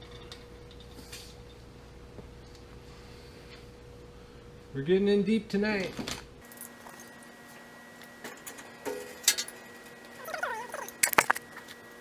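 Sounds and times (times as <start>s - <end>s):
faint steady hum: 6.4s - 12.0s.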